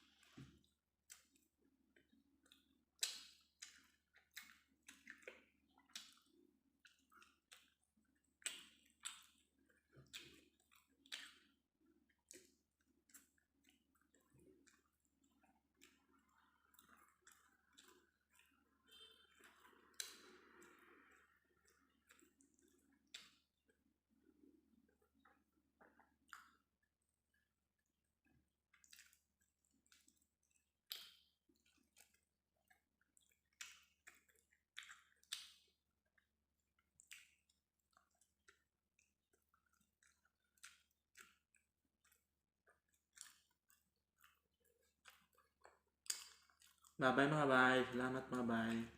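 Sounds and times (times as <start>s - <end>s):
wet chewing: 0.1s - 47.0s.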